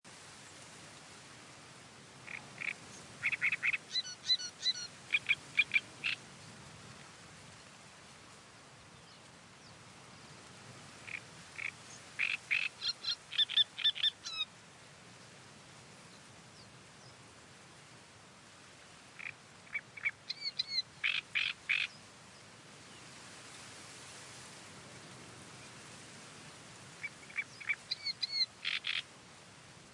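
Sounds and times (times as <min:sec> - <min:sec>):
wind in the reeds: 0:00.0 - 0:29.9
reed warbler singing: 0:02.2 - 0:06.2, 0:11.1 - 0:14.5, 0:19.2 - 0:22.1, 0:27.0 - 0:29.0.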